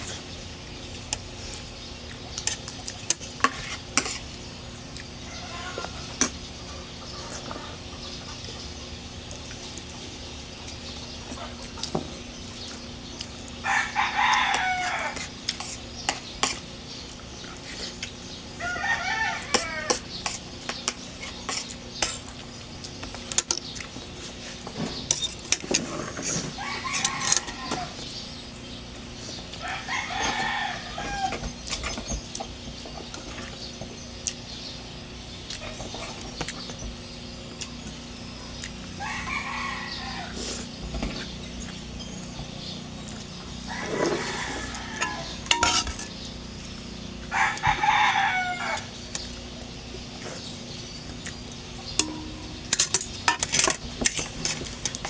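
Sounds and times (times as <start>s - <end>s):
rooster crowing: 5.3s - 6.2s, 13.6s - 15.4s, 18.6s - 20.1s, 26.6s - 28.0s, 29.6s - 31.4s, 39.0s - 40.5s, 43.6s - 45.8s, 47.3s - 49.0s.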